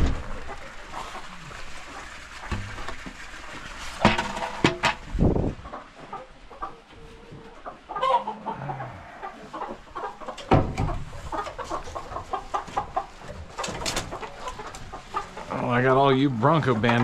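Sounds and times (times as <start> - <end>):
chickens clucking: 0.0 - 17.0
knocks and clatter: 16.5 - 17.0.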